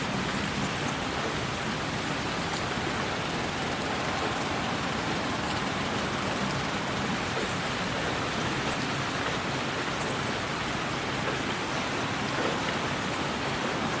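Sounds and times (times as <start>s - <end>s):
steady white noise hiss: 0.0s - 8.8s.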